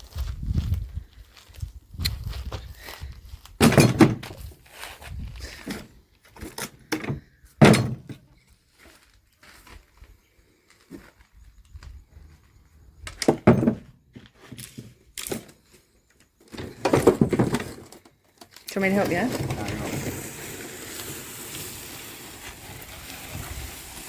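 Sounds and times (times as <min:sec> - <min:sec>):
knocks and thumps of objects: 0:03.6 - 0:04.4, 0:06.9 - 0:08.2, 0:13.1 - 0:15.5, 0:16.5 - 0:18.0.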